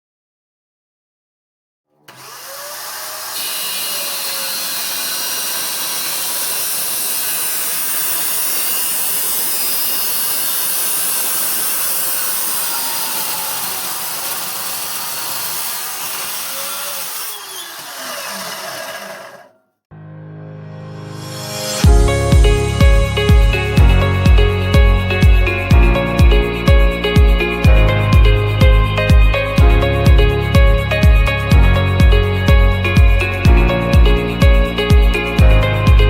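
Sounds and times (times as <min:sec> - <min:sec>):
miter saw cutting: 0:02.0 - 0:19.6.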